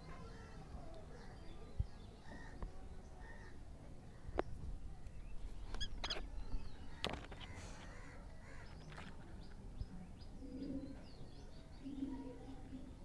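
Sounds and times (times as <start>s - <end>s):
parrot squawky chirps: 5.8s - 6.2s.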